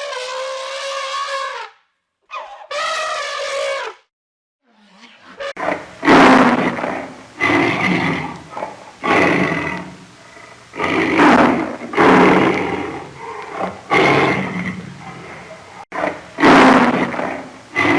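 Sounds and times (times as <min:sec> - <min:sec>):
large animal roaring: 0:05.2 - 0:17.9.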